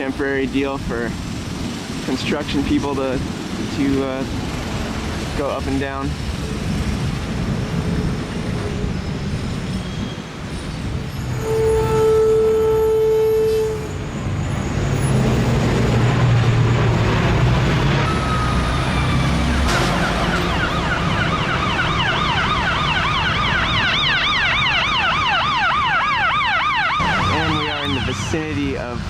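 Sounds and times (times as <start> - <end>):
street traffic rumbling: 0.0 - 29.0
vehicle horn: 11.3 - 14.0
emergency siren yelping: 18.0 - 28.6.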